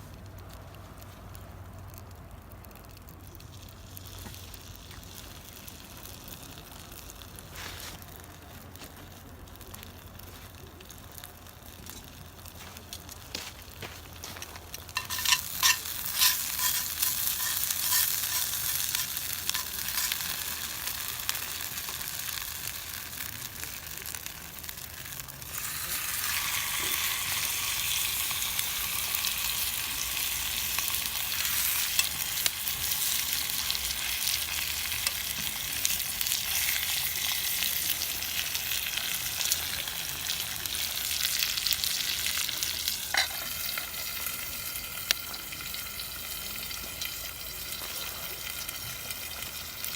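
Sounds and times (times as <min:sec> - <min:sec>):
food sizzling in a pan: 0:14.9 - 0:49.9.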